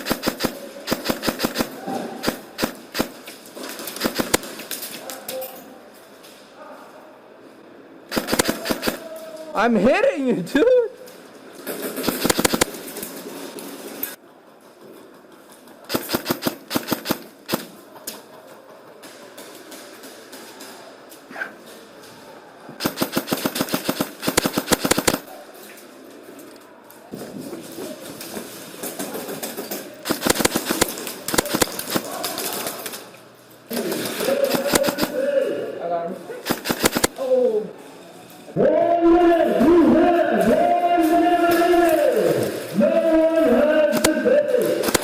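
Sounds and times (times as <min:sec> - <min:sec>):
airsoft rifle shots: 0:00.0 - 0:04.8, 0:08.1 - 0:09.1, 0:11.9 - 0:12.8, 0:15.9 - 0:17.8, 0:22.8 - 0:25.3, 0:30.0 - 0:32.6, 0:33.9 - 0:35.4, 0:36.4 - 0:37.2, 0:43.9 - 0:45.0.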